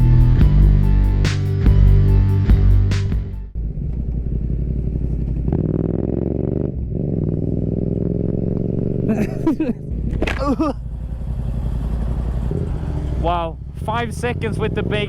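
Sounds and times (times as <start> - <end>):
music: 0.0 - 3.6
motorcycle engine accelerating: 0.0 - 15.0.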